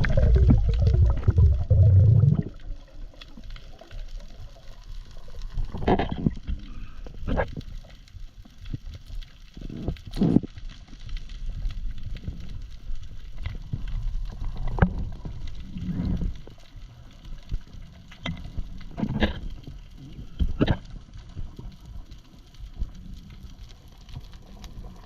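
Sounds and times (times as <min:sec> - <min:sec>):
low rumble: 0:00.0 - 0:03.0
water gurgling and sloshing: 0:00.0 - 0:25.0.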